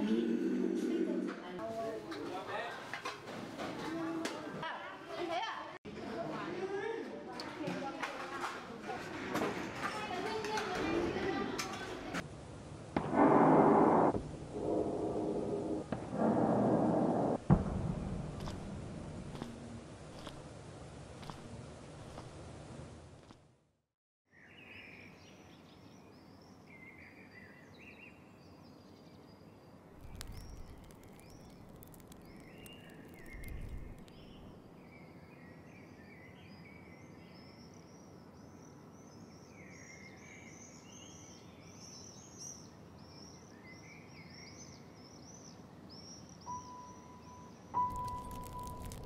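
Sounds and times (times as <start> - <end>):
outdoor background hiss: 11.4 - 16.1, 24.4 - 47.8
low rumbles: 13.0 - 20.0
small birds chirping: 24.5 - 49.0.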